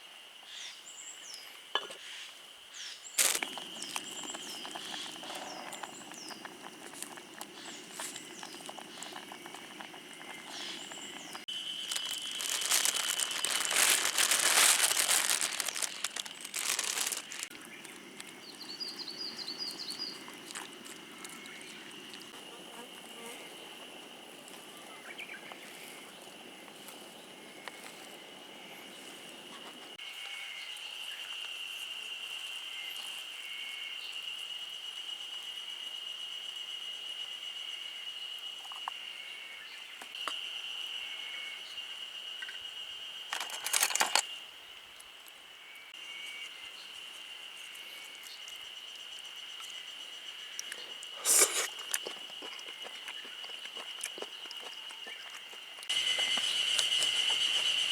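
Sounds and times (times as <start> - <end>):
insects trilling: 2.0 - 57.9.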